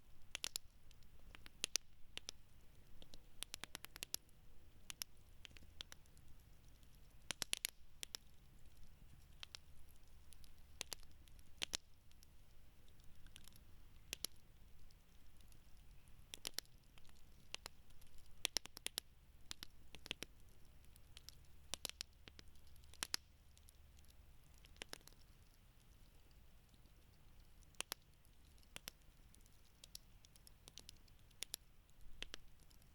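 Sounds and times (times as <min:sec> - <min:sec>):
campfire crackling: 0:00.1 - 0:23.2.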